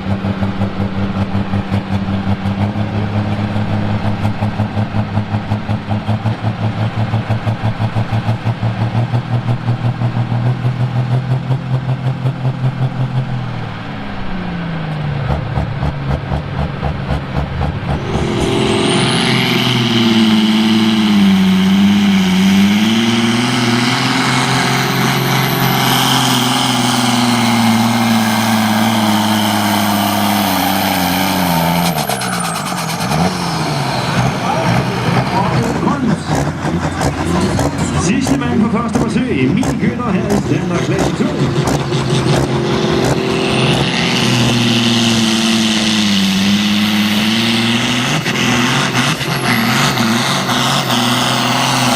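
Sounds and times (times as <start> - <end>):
tractor diesel engine running: 0.0 - 51.9
high whistle: 18.0 - 22.2.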